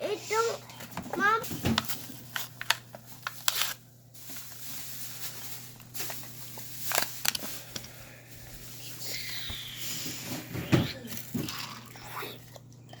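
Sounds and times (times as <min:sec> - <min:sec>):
plastic crinkling: 0:01.2 - 0:10.3
cardboard tearing: 0:03.2 - 0:03.8.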